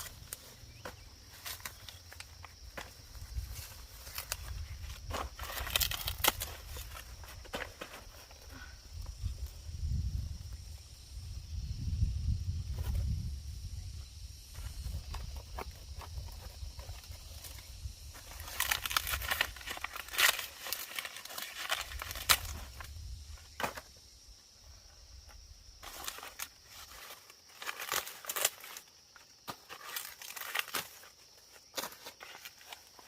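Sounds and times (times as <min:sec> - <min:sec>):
dry leaves rustling and crackling: 0:03.4 - 0:07.2, 0:18.2 - 0:22.9, 0:25.8 - 0:28.9, 0:29.5 - 0:31.1.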